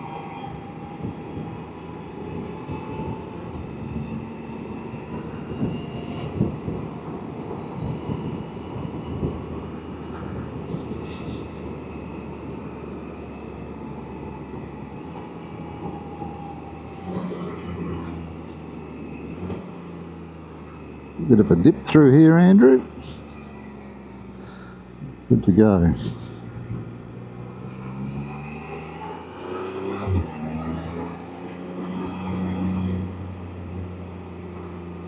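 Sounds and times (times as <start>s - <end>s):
engine drone: 0.0s - 35.0s
road noise: 0.0s - 35.0s
wind noise: 5.2s - 11.5s.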